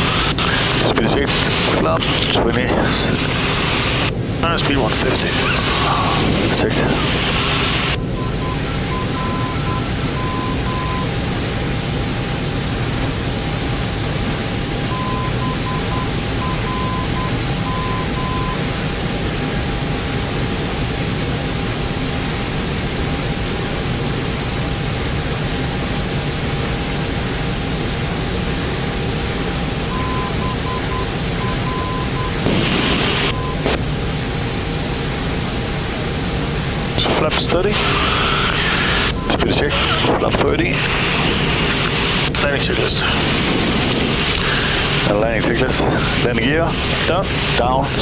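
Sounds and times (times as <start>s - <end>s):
hiss of cockpit airflow: 3.0s - 40.1s, 40.7s - 48.0s
high morse code beeping: 7.8s - 11.2s, 14.8s - 18.7s, 29.9s - 33.8s
faint steady tone: 7.9s - 11.3s, 14.8s - 18.8s, 29.9s - 32.4s.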